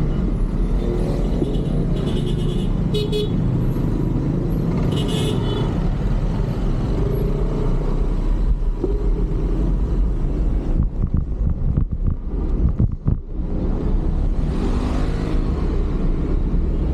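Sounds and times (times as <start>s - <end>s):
vehicle engines rumbling: 0.0s - 16.9s.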